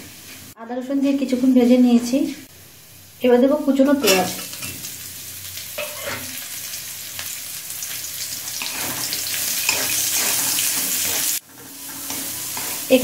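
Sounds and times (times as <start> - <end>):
onion sizzling in hot oil: 0.0 - 13.0
spatula scraping metal pan: 8.6 - 13.0.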